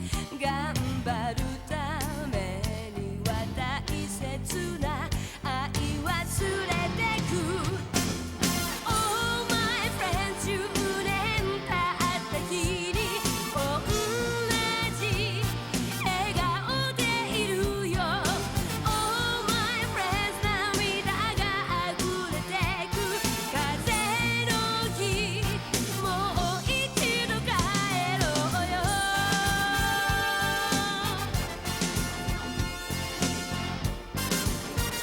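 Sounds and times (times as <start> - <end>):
person singing with vibrato: 0.0 - 32.0
band with steady beat: 0.0 - 35.0.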